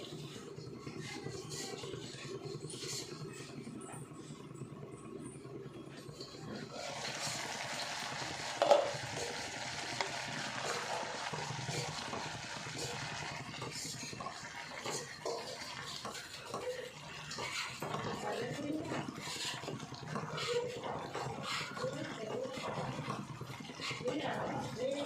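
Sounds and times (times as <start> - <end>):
spoon stirring and scraping: 0.0 - 4.6, 5.8 - 25.0
vegetables sizzling in a pan: 6.6 - 25.0.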